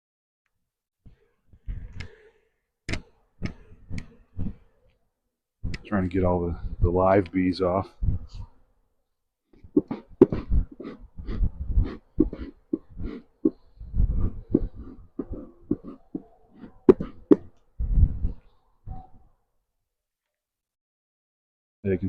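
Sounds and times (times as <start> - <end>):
knocking on wood: 16.9 - 17.5.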